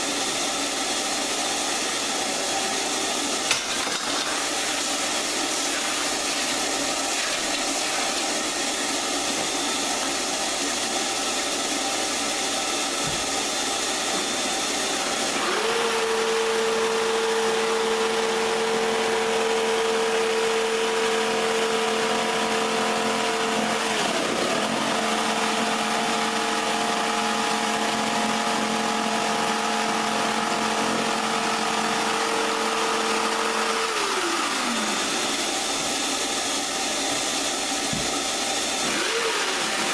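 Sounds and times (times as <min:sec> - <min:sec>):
power tool rushing noise: 0:01.2 - 0:15.9, 0:32.5 - 0:39.9.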